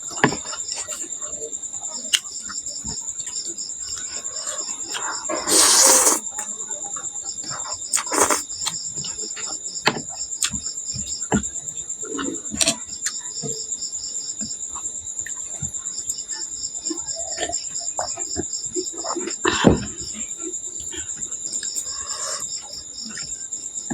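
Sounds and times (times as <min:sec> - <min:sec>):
crickets trilling: 0:00.0 - 0:23.9
pulsed cricket chirp: 0:00.0 - 0:23.9
person eating: 0:04.9 - 0:06.2, 0:08.0 - 0:08.6.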